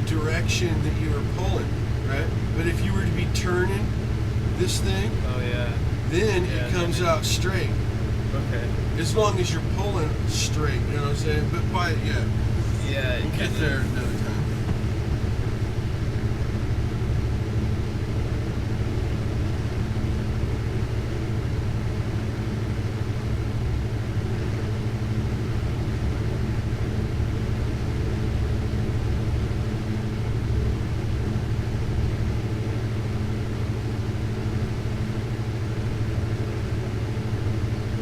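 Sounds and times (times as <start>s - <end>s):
torch flame rumbling: 0.0s - 21.0s.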